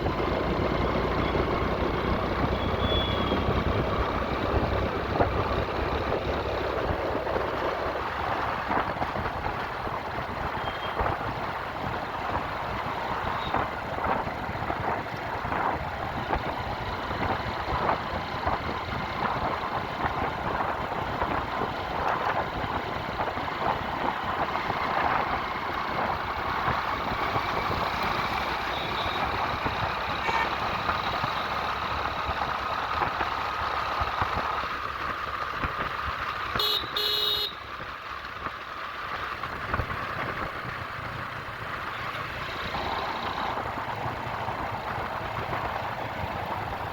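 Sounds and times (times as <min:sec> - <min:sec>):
rushing wind noise: 0:00.0 - 0:36.1
road traffic: 0:00.0 - 0:46.9
vehicle horn honking: 0:28.6 - 0:29.2, 0:30.2 - 0:30.6, 0:36.6 - 0:37.6.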